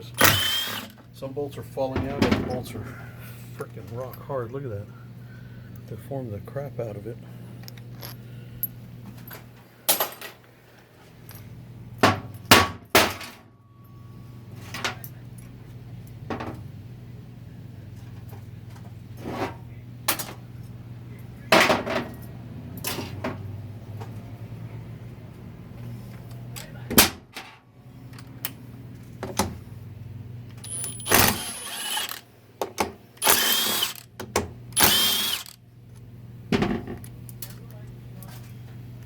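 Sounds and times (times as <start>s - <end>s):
steady low hum: 0.0s - 9.9s
metal tools clanking on metal: 30.6s - 32.2s.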